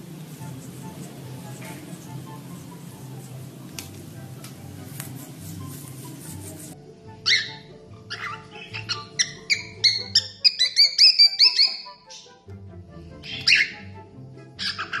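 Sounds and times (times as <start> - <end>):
cockatiel whistling and chirping: 7.2 - 12.3, 13.2 - 13.8, 14.6 - 15.0.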